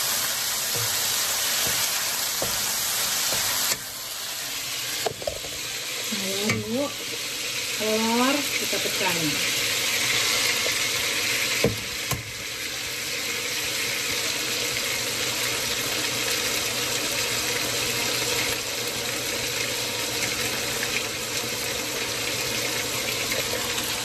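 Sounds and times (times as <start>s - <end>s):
chicken sizzling in a wok: 0.0s - 24.0s.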